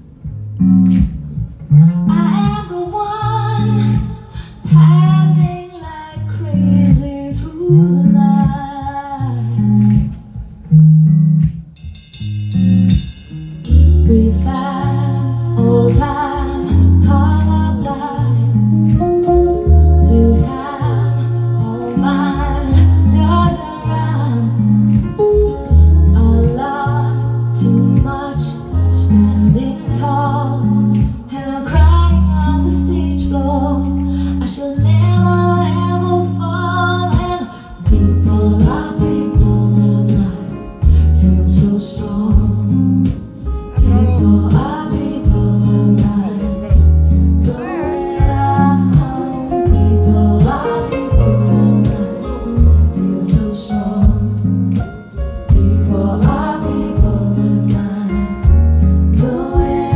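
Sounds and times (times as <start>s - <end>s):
bass guitar line: 0.0s - 59.9s
guitar: 0.0s - 59.9s
person singing: 13.7s - 59.9s.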